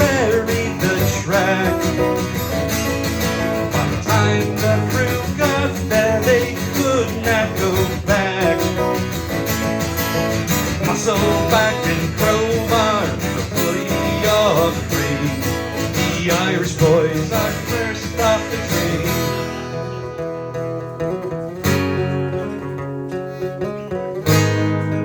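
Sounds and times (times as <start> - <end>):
bass line: 0.0 - 23.1
strummed acoustic guitar: 0.0 - 25.0.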